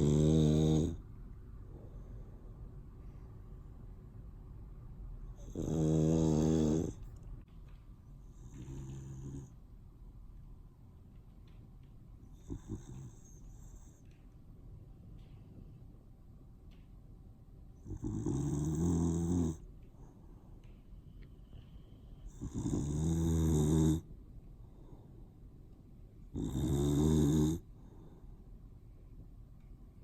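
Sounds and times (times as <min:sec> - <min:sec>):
dog snoring loudly: 0:00.0 - 0:01.0, 0:05.4 - 0:07.0, 0:08.3 - 0:09.5, 0:12.3 - 0:13.9, 0:17.8 - 0:19.6, 0:22.3 - 0:24.1, 0:26.3 - 0:27.7.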